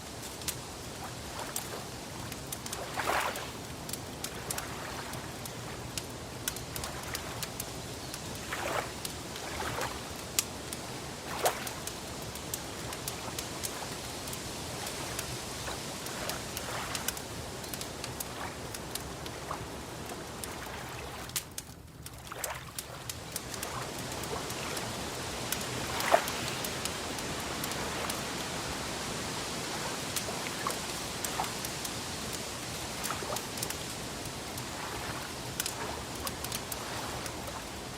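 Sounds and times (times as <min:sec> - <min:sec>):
wood fire crackling: 0:00.0 - 0:37.9.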